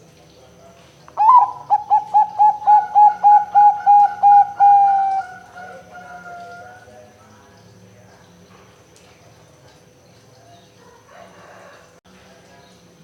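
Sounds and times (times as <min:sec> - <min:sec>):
dove cooing: 0:01.2 - 0:06.9.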